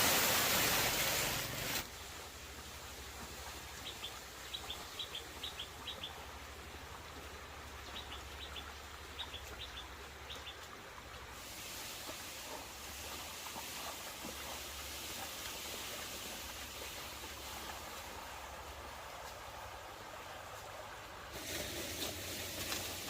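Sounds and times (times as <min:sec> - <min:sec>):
broad rushing hiss: 0:00.0 - 0:02.0, 0:11.3 - 0:18.6, 0:21.3 - 0:23.0
small bird chirping: 0:03.8 - 0:06.2, 0:07.9 - 0:10.6.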